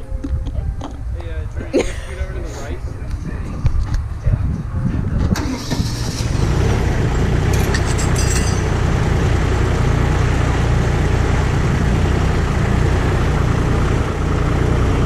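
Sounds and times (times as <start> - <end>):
engine idling: 5.4 - 15.0
light metallic clinks: 7.5 - 8.8.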